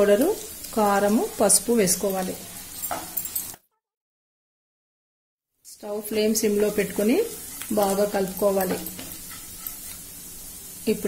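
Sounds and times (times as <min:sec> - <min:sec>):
onions sizzling in oil: 0:00.0 - 0:03.6, 0:05.7 - 0:11.0
wooden spatula stirring in pan: 0:00.4 - 0:03.6, 0:06.1 - 0:10.8.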